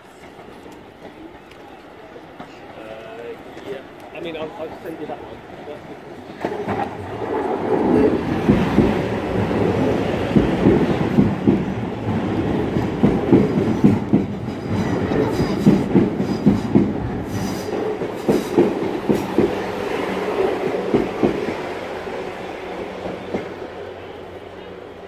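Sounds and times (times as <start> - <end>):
train wheels clattering over rail joints: 6.3 - 19.8.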